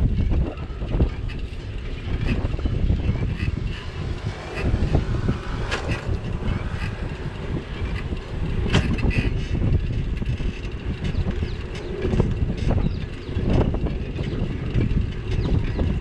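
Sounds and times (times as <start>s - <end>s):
wind buffeting microphone: 0.0s - 16.0s
sharp clicks and knocks: 3.3s - 16.0s.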